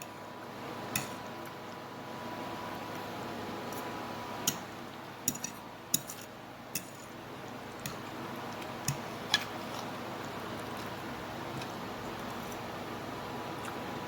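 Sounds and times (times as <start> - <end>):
fork clicking against a plate: 5.3 - 7.0.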